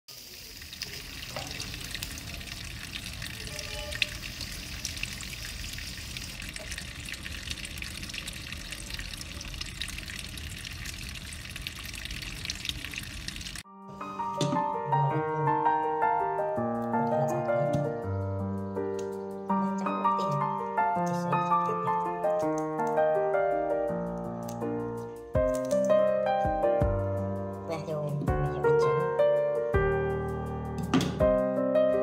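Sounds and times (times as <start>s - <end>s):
gentle piano music: 13.6s - 32.0s.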